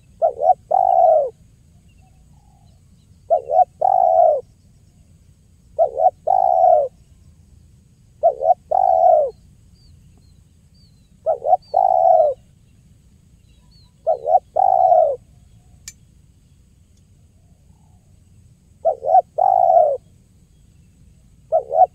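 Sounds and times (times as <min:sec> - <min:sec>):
dove cooing: 0:00.0 - 0:01.4, 0:03.3 - 0:04.5, 0:05.8 - 0:07.0, 0:08.2 - 0:09.4, 0:11.2 - 0:12.4, 0:14.0 - 0:15.2, 0:18.8 - 0:20.0, 0:21.5 - 0:21.9
small bird chirping: 0:00.0 - 0:21.9
sharp click: 0:15.8 - 0:16.0.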